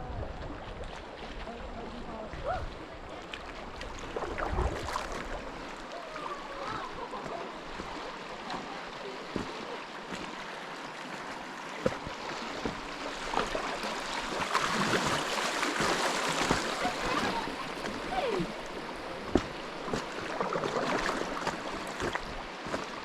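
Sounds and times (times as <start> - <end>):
creek water rushing and splashing: 0.0 - 23.0.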